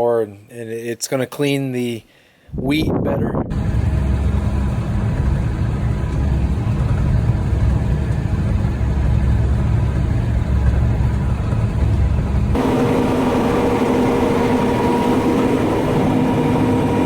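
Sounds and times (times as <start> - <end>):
steady mechanical hum: 2.7 - 17.0
large engine rumbling: 3.5 - 17.0.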